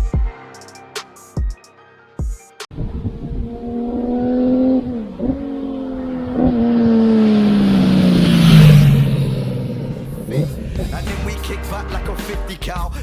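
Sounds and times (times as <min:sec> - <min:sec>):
motorcycle passing at speed: 0:02.8 - 0:11.1.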